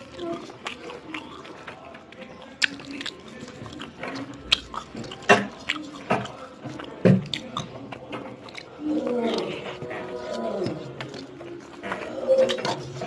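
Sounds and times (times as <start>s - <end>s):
person chewing and biting: 0.0s - 13.0s.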